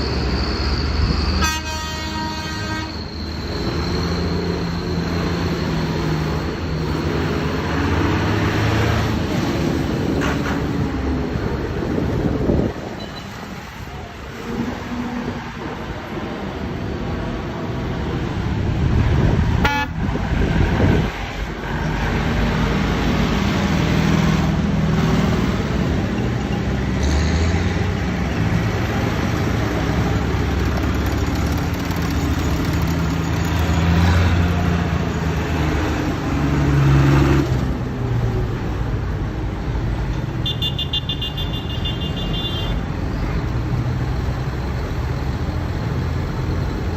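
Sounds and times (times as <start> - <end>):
tractor engines rumbling: 0.0 - 46.9
horn toot: 1.4 - 3.1, 19.6 - 20.0.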